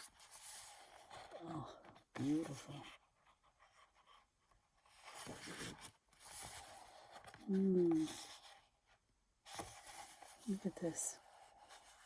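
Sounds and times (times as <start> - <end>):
paper rustling and sliding: 4.8 - 8.6.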